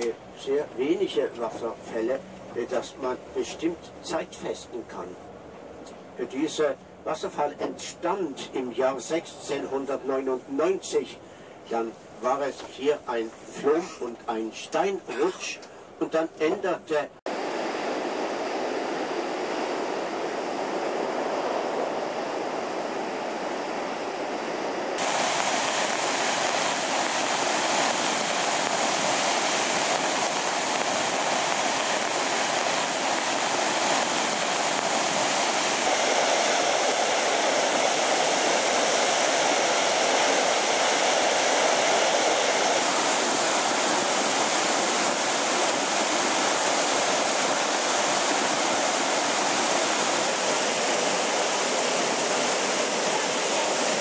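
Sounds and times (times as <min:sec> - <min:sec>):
waterfall rushing: 0:25.0 - 0:54.0.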